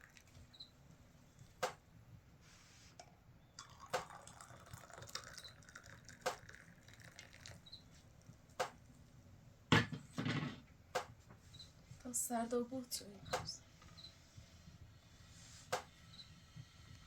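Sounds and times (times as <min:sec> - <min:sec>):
water dripping: 0:03.6 - 0:07.7.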